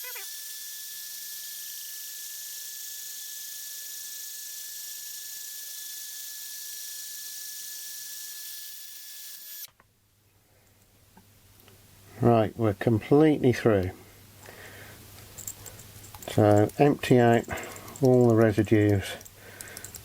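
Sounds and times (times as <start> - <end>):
cutter grinding through glass: 0.0 - 9.7
electric drill motor whine: 0.0 - 9.7.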